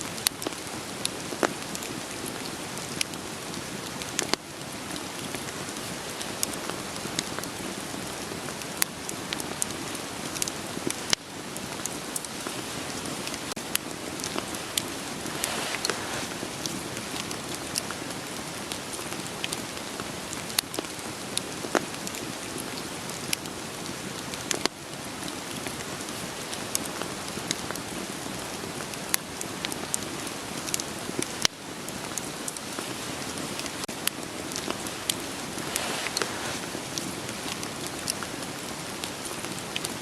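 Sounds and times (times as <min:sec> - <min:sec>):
rain hiss: 0:00.0 - 0:40.0
wood fire popping and crackling: 0:00.1 - 0:40.0.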